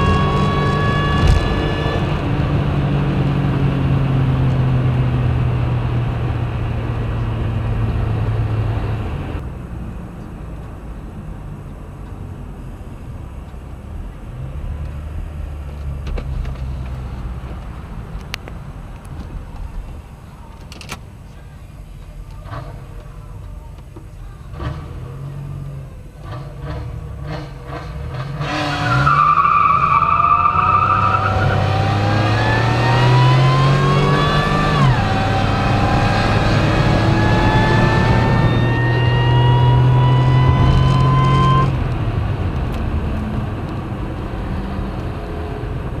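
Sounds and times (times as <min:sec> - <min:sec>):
car engine accelerating hard: 0:00.0 - 0:10.2, 0:24.5 - 0:46.0.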